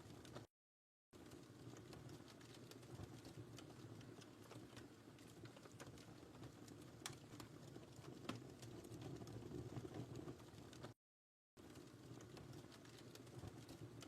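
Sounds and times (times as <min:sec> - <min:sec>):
wood fire crackling: 0:00.0 - 0:00.5, 0:01.2 - 0:11.0, 0:11.6 - 0:14.0
low rumble of burning logs: 0:01.2 - 0:11.0, 0:11.6 - 0:14.0.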